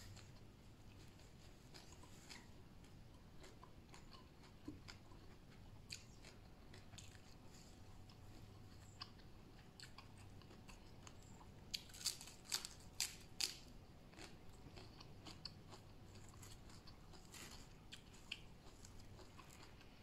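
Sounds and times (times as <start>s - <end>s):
person chewing food: 0.0s - 20.0s
crunchy bites: 11.7s - 19.8s.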